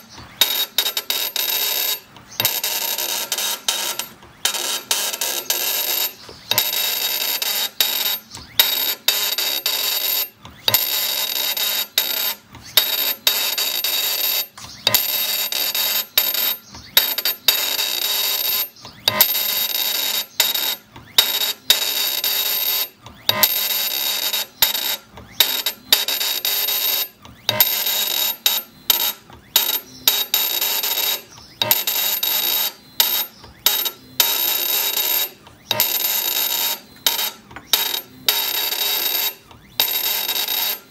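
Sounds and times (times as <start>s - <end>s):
high machine whine: 0.0s - 40.9s
engraving machine cutting stone: 27.4s - 40.9s.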